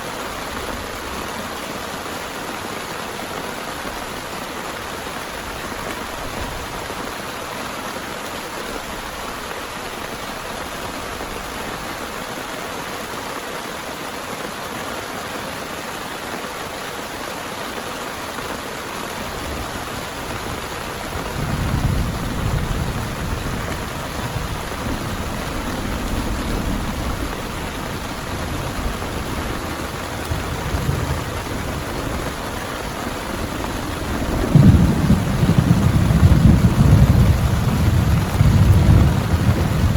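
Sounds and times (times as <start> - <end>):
heavy rain falling: 0.0 - 39.9
thunder rumbling: 19.2 - 39.9.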